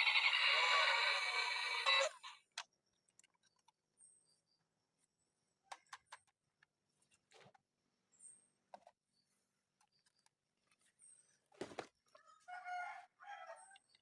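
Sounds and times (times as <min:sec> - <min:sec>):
rooster crowing: 0:00.0 - 0:02.2, 0:12.2 - 0:13.8.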